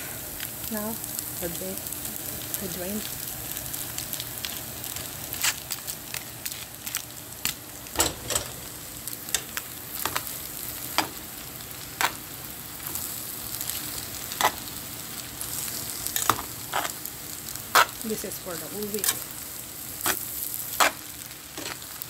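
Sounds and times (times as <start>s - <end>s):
noodles sizzling in a pan: 0.0s - 22.0s
metal tongs clacking on pan: 8.0s - 10.3s, 16.2s - 16.4s.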